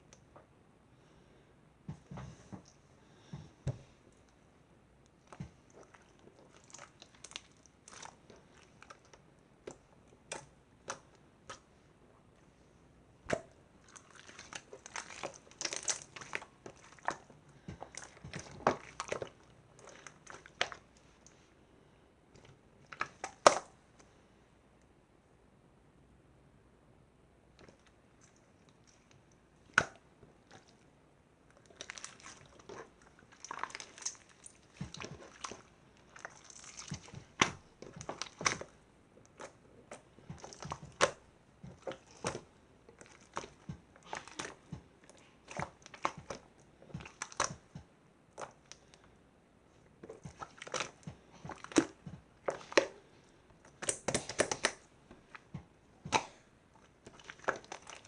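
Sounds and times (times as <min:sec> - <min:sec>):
slime squished by hand: 0:05.1 - 0:11.7, 0:13.2 - 0:21.4, 0:22.4 - 0:23.8, 0:27.5 - 0:30.8, 0:31.5 - 0:49.1, 0:49.9 - 0:58.0.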